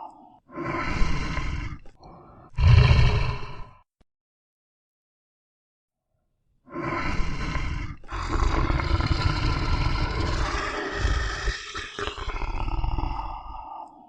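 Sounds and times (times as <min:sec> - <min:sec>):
big cat roaring: 0:00.6 - 0:03.8, 0:06.7 - 0:13.9.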